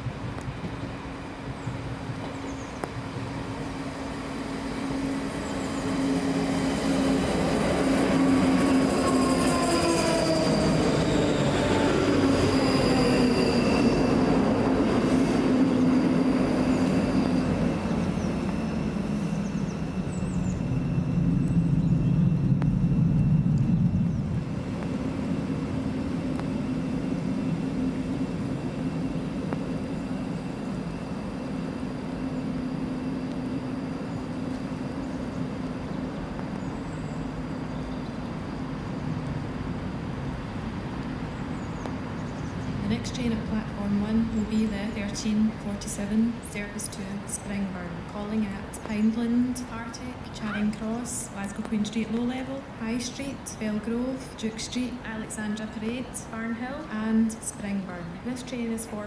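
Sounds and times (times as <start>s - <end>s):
train motor whine: 2.8s - 35.8s
wheel and brake squeal: 8.9s - 22.3s.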